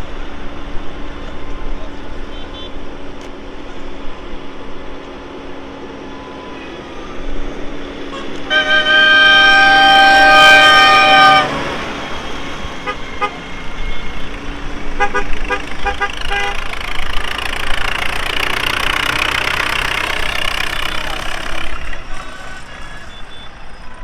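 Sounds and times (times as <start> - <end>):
engine noise: 0.0 - 24.0
vehicle horn blasts and beeps: 2.3 - 2.9, 8.0 - 18.6.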